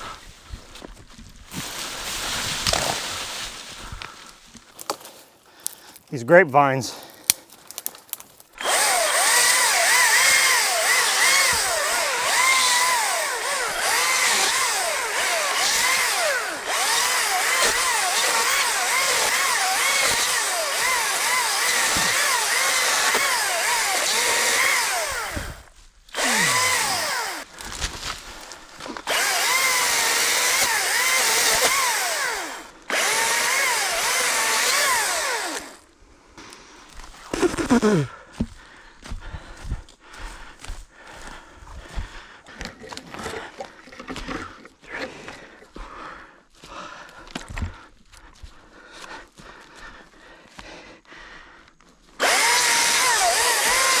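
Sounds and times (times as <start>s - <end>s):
electric chainsaw cutting: 2.6s - 3.0s, 8.6s - 28.0s, 28.8s - 35.8s, 37.1s - 38.5s, 52.2s - 54.0s.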